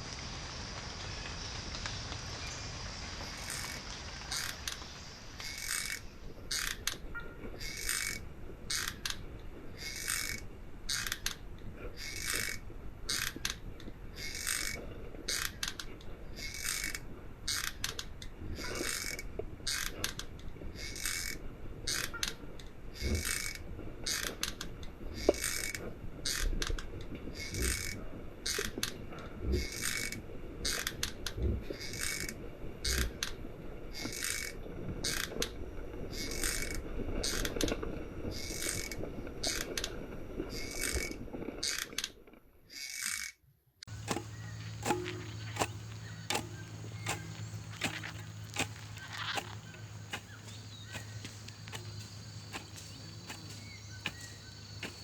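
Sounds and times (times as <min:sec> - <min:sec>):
rhythmic ratcheting rasp: 0:43.9 - 0:55.0.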